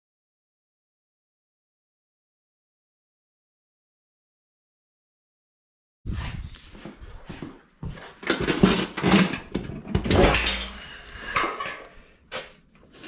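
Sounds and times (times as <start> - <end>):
metal tools clinking and clanking: 8.2 - 13.0.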